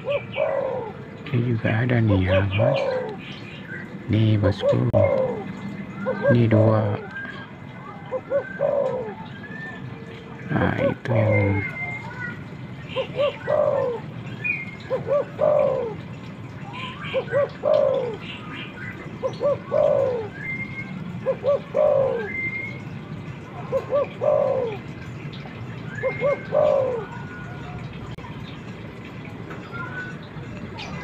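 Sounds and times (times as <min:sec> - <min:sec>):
dove cooing: 0:00.0 - 0:01.2, 0:02.1 - 0:03.2, 0:04.4 - 0:07.1, 0:07.8 - 0:14.1, 0:14.8 - 0:18.4, 0:19.1 - 0:25.1, 0:26.0 - 0:27.9
small birds chirping: 0:00.0 - 0:31.0.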